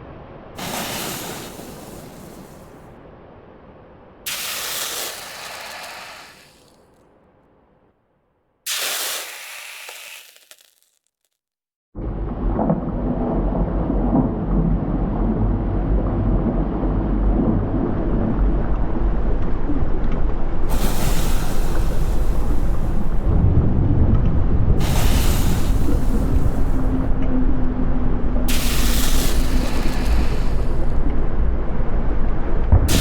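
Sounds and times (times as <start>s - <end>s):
volcano rumbling: 0.0s - 6.7s, 12.0s - 33.0s
loud hissing surges: 0.6s - 2.8s, 4.3s - 6.8s, 8.7s - 10.9s, 20.7s - 23.2s, 24.8s - 27.1s, 28.5s - 31.0s.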